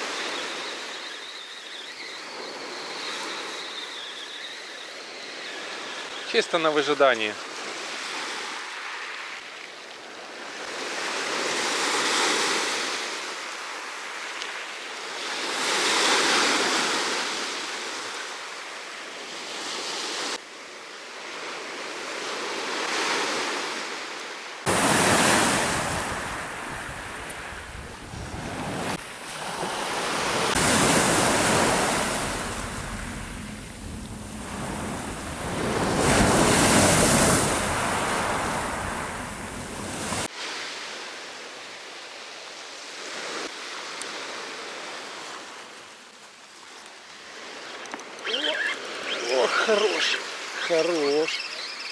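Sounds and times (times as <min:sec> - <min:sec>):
surf breaking on a beach: 0:10.2 - 0:42.4
wind buffeting microphone: 0:24.7 - 0:40.3.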